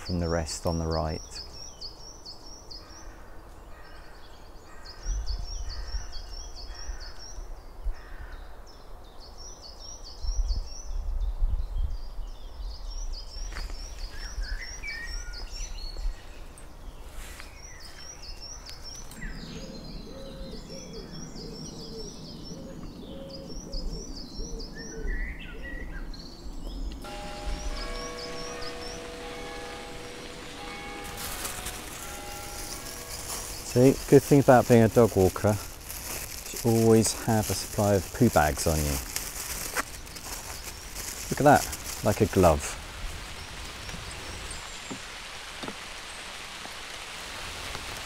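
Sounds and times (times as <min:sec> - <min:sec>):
wind rumble on microphone: 0:05.1 - 0:08.4, 0:10.1 - 0:17.0
bird chirping: 0:11.7 - 0:42.6.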